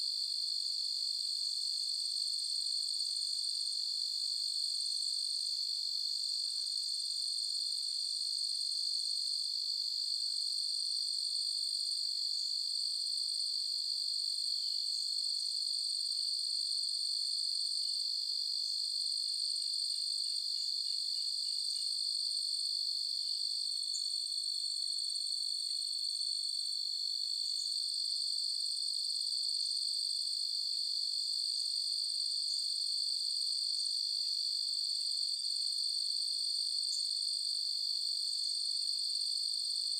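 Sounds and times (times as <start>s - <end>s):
crickets chirping: 9.6s - 30.2s, 32.3s - 37.6s.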